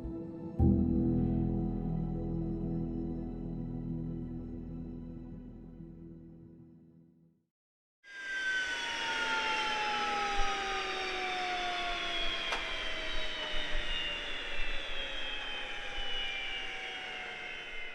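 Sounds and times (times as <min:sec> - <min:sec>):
jet engine whine and rush: 0:08.1 - 0:17.9.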